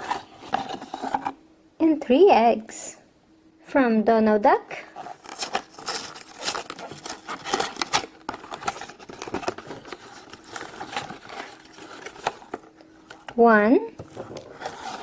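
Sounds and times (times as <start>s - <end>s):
packaging crinkling and rustling: 0.0s - 1.4s, 4.9s - 15.0s.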